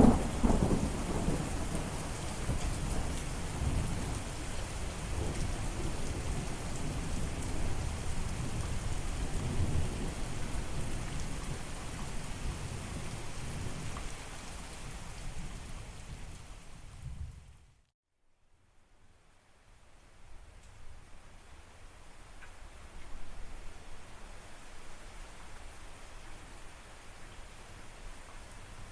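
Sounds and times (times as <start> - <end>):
low rolling thunder: 0.0 - 13.9
heavy rain: 0.0 - 17.8, 20.1 - 28.9.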